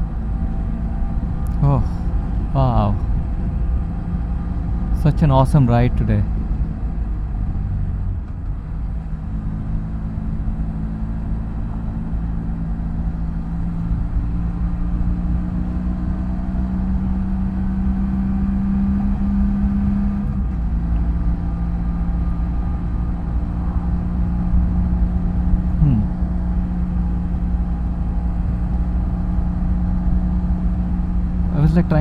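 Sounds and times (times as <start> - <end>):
wind and road rumble: 0.0 - 32.0
motorcycle engine cruising: 6.3 - 32.0.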